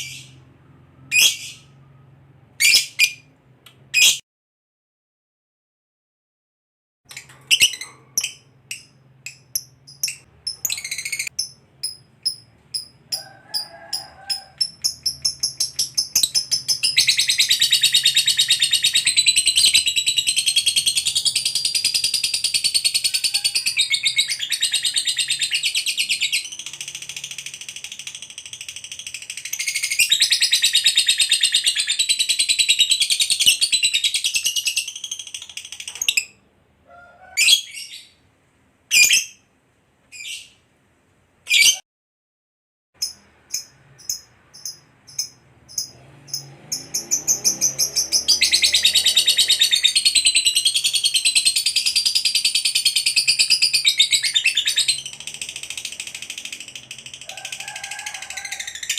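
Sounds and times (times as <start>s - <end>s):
lovebird chattering trill: 7.5s - 13.3s, 14.3s - 36.4s, 43.0s - 57.8s.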